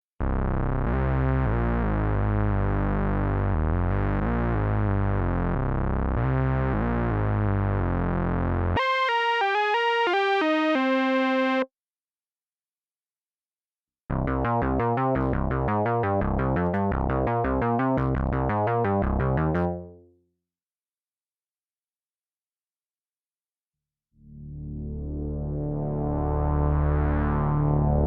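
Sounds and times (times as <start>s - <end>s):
synthesizer chords and notes: 6.2s - 11.7s, 14.1s - 20.0s, 24.3s - 28.0s.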